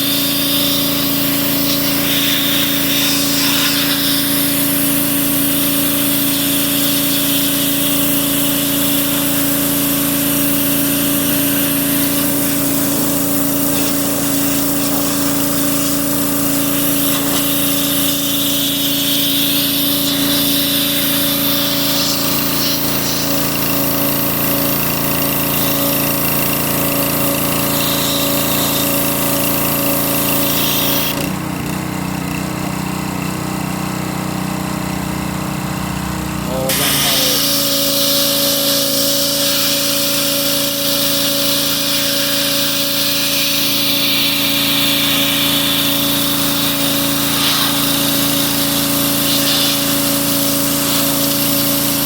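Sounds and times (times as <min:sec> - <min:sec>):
machine motor hum and hiss: 0:00.0 - 0:33.0, 0:34.3 - 0:52.0.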